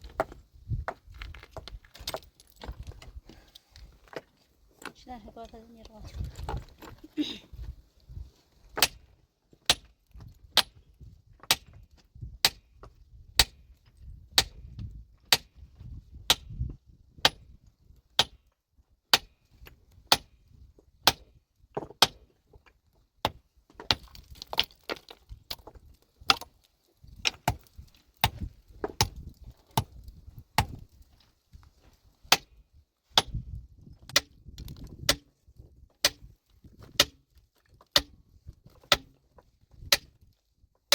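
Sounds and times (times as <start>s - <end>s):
metal tool striking rock: 8.8s - 9.0s, 9.6s - 9.9s, 10.5s - 10.8s, 13.4s - 13.6s, 18.2s - 18.4s, 19.1s - 19.4s, 21.0s - 22.2s, 23.2s - 26.5s, 30.6s - 30.8s, 33.2s - 33.4s, 37.9s - 39.2s.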